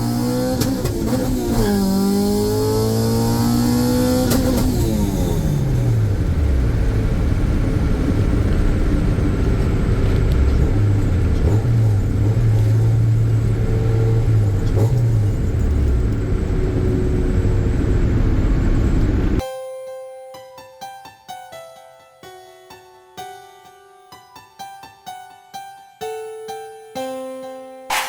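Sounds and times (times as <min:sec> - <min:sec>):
car engine revving: 0:00.0 - 0:19.4.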